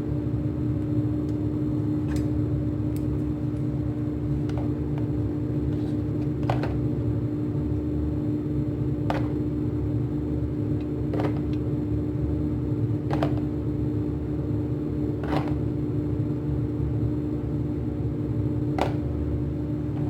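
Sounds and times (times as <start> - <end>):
steady mechanical hum: 0.0 - 20.0.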